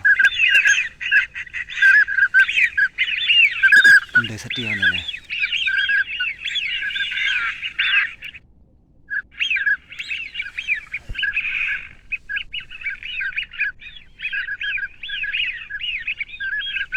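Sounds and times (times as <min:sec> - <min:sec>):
birds chirping squeakily: 0:00.0 - 0:08.1.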